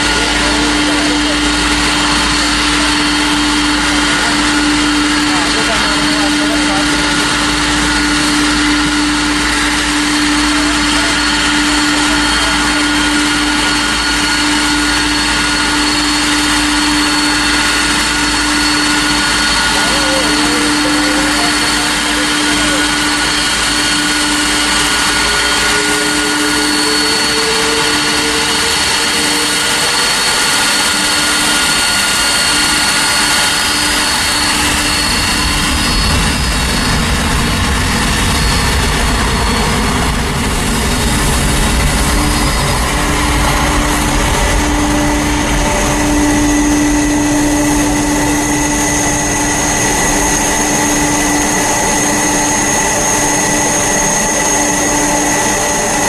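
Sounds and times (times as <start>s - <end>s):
deep rumble: 0.0s - 56.0s
high whining tones: 0.0s - 56.0s
jet engines roaring: 0.0s - 56.0s.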